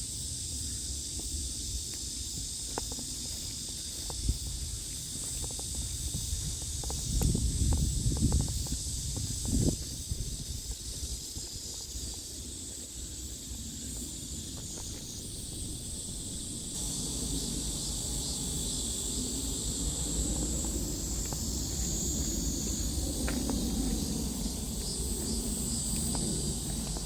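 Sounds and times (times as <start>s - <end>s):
cicadas buzzing: 0.0s - 27.0s
low rumbling noise: 15.2s - 27.0s.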